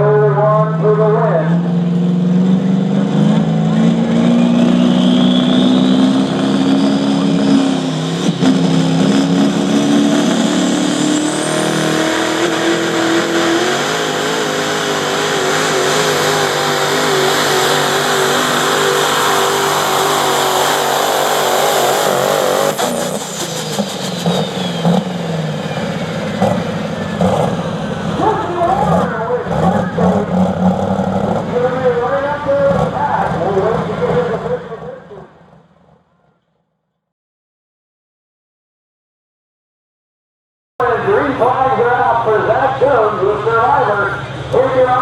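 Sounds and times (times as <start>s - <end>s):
engine at full throttle: 0.0s - 35.8s.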